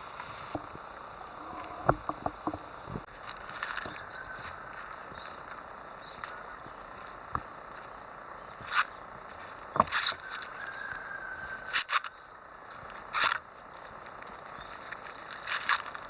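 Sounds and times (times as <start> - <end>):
insects buzzing: 0.0 - 16.0
rustles and knocks: 0.2 - 5.6, 8.6 - 11.6.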